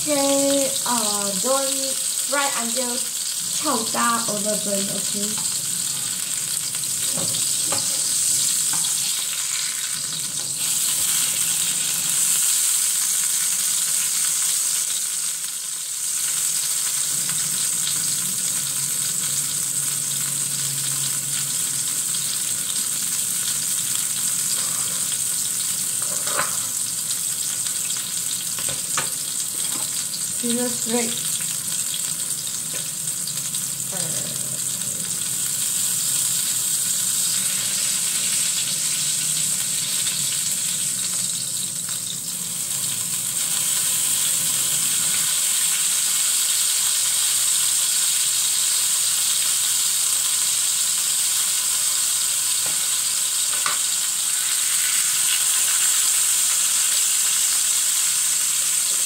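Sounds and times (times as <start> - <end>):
meat sizzling in a pan: 0.0 - 59.0
spatula scraping a pan: 24.5 - 25.2.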